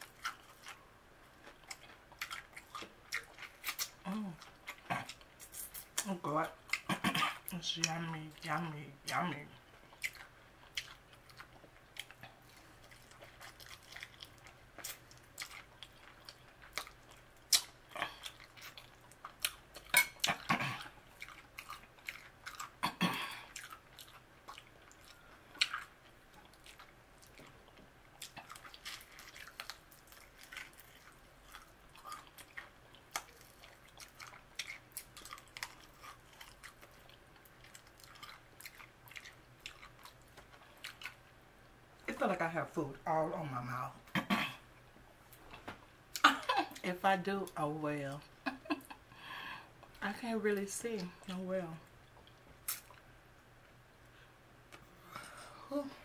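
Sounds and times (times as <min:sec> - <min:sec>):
crunching fried chicken: 0:01.4 - 0:06.0, 0:09.9 - 0:41.2
wet mouth clicks: 0:52.7 - 0:53.0.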